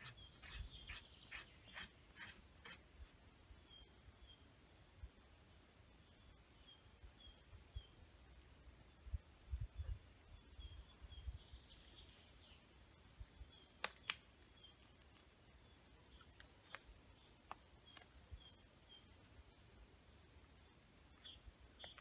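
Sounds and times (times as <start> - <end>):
twigs snapping: 13.8 - 14.2.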